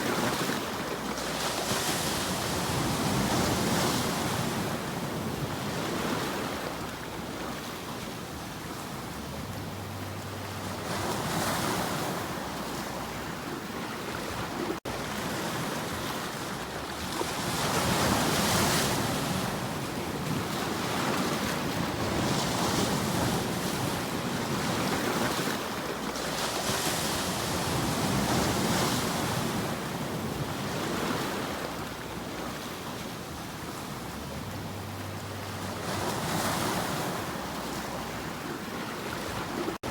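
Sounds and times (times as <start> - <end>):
ocean waves washing in: 0.0 - 39.9
wind: 0.0 - 39.9.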